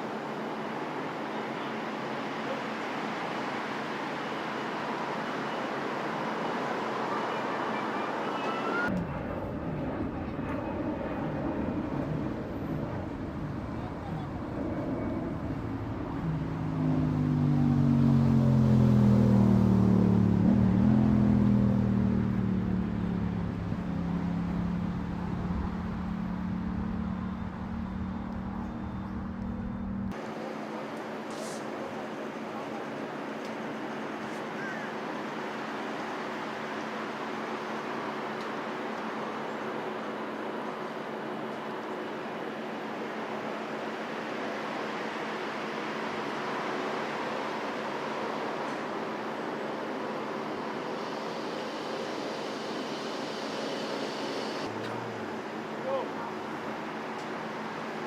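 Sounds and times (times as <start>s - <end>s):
engine noise with whine: 0.0s - 58.0s
engine humming: 6.7s - 30.3s
low engine rumble: 8.4s - 54.0s.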